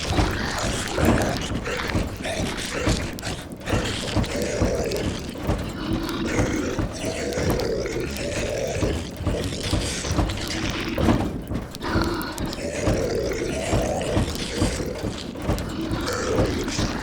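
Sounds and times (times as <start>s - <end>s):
rain on roof: 0.0s - 17.0s
zombie moaning and growling: 0.0s - 17.0s.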